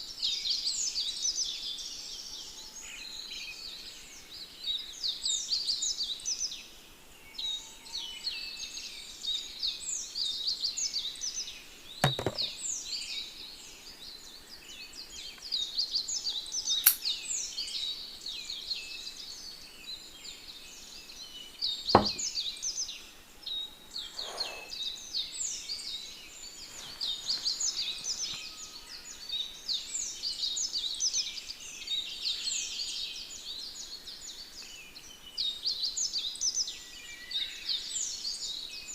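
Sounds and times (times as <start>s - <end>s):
small birds chirping and singing: 0.0s - 38.9s.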